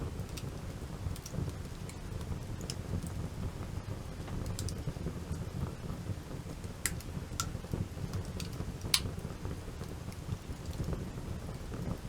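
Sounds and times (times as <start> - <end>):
campfire crackling and popping: 0.0 - 3.3, 4.2 - 11.0.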